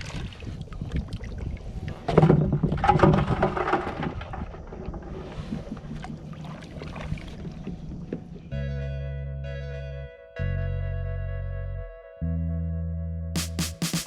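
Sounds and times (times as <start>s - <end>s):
water splashing: 2.7s - 8.5s.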